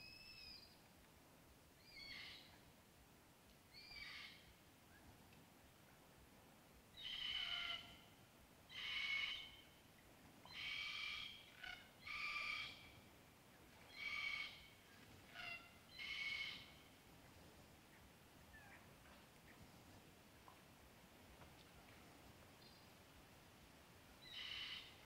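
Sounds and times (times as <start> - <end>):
bird calling: 3.7 - 4.5, 7.0 - 8.1, 8.7 - 9.7, 10.4 - 13.0, 13.9 - 16.9, 24.2 - 25.0.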